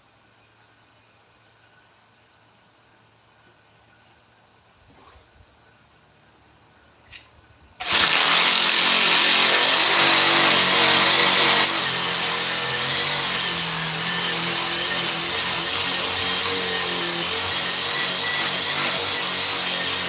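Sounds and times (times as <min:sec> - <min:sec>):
electric power tool running: 0:07.8 - 0:20.0.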